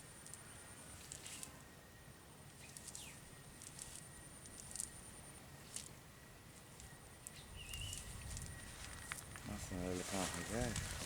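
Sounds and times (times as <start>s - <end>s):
high insect-like trill: 2.5s - 11.0s.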